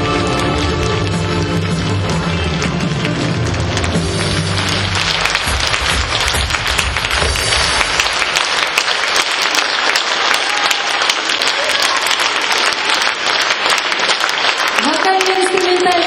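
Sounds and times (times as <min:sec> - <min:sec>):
musical accompaniment: 0:00.0 - 0:09.0
audience applauding: 0:00.0 - 0:16.0.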